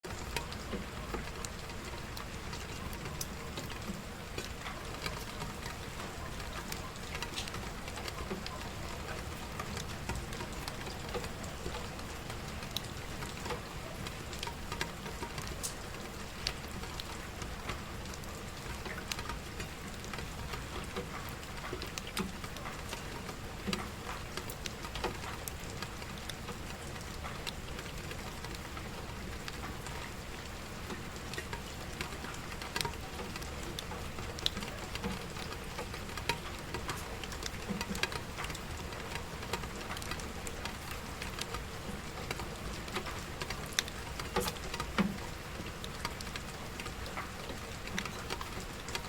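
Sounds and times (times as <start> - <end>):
steady rainfall: 0.0 - 49.0.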